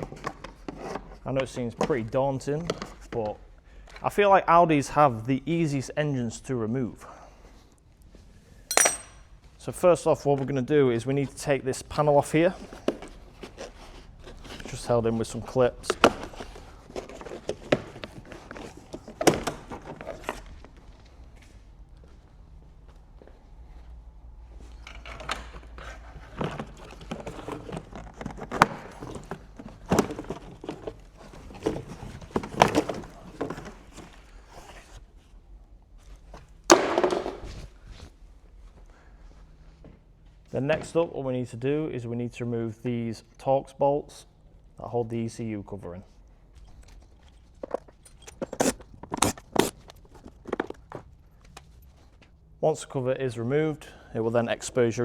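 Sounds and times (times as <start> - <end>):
hand tools and metal parts clinking: 8.7 - 9.3, 46.6 - 50.8.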